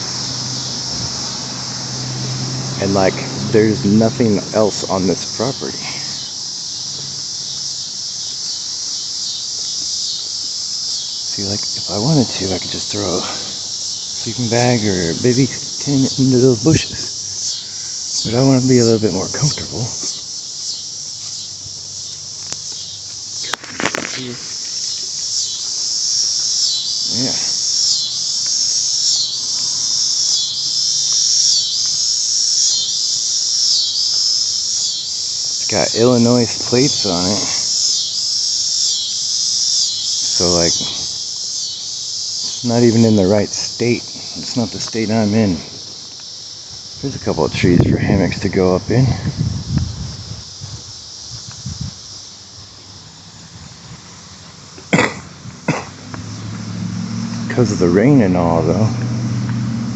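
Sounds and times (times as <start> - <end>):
insects droning: 0.0 - 59.9
person coughing: 54.9 - 56.0.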